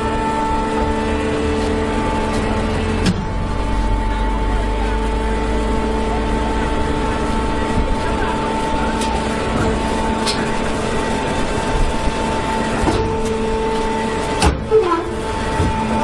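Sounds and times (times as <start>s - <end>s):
baler machine hum: 0.0s - 16.0s.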